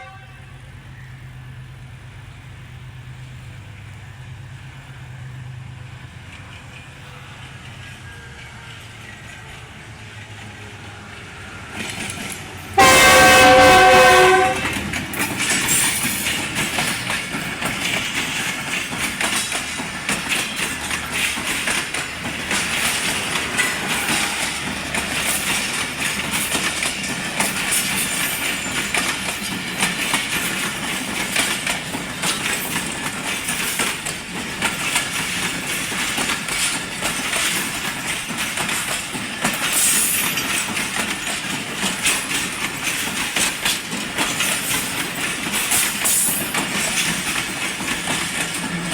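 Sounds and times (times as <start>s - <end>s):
locomotive horn: 0.0s - 0.6s, 12.8s - 14.8s
train rumbling past: 0.0s - 48.9s
wheels clattering over rail joints: 11.7s - 48.9s.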